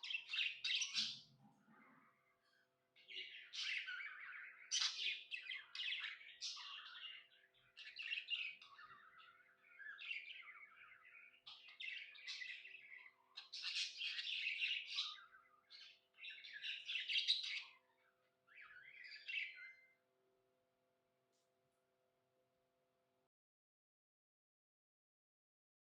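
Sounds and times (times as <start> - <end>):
budgerigar chirping and warbling: 0.1 - 1.3.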